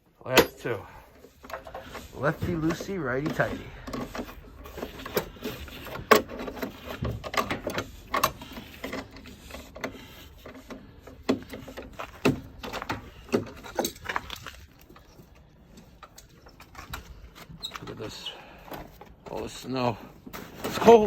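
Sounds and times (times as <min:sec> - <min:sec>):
metallic clanks and knocks: 0:00.3 - 0:14.5.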